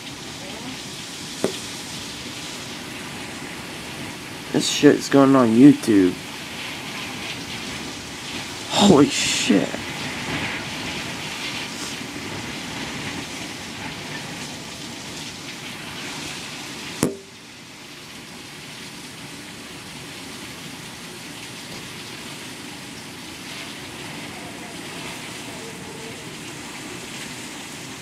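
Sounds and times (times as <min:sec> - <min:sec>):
heavy rain hissing: 0:00.0 - 0:28.0
sharp knock: 0:17.0 - 0:17.3.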